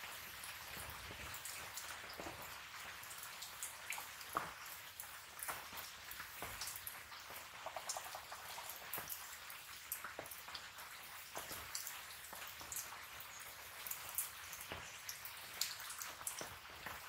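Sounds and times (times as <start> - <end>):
sharp pops and crackles: 3.9 - 12.9.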